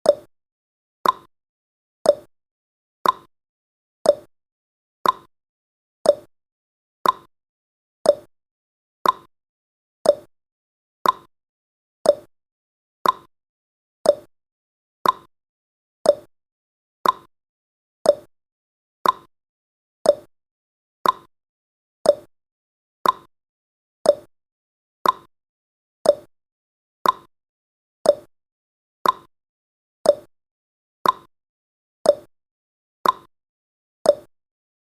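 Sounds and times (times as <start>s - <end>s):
clock-style timer ticking: 1.0s - 1.3s, 2.1s - 2.3s, 3.0s - 3.3s, 4.0s - 4.3s, 5.0s - 5.3s, 6.0s - 6.3s, 7.0s - 7.3s, 8.0s - 8.3s, 9.0s - 9.3s, 10.0s - 10.3s, 11.0s - 11.3s, 12.0s - 12.3s, 13.0s - 13.3s, 14.0s - 14.3s, 15.0s - 15.3s, 16.0s - 16.3s, 17.0s - 17.3s, 18.0s - 18.3s, 19.0s - 19.3s, 20.0s - 20.3s, 21.0s - 21.3s, 22.0s - 22.3s, 23.0s - 23.3s, 24.0s - 24.3s, 25.0s - 25.3s, 26.0s - 26.3s, 27.0s - 27.3s, 28.0s - 28.3s, 29.0s - 29.3s, 30.0s - 30.3s, 31.0s - 31.3s, 32.1s - 32.3s, 33.0s - 33.3s, 34.1s - 34.3s.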